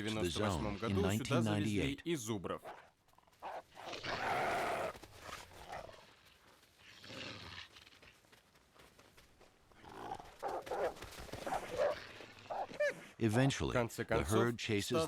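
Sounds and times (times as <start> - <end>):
wild animal rough calls: 2.6 - 8.2, 9.7 - 13.2.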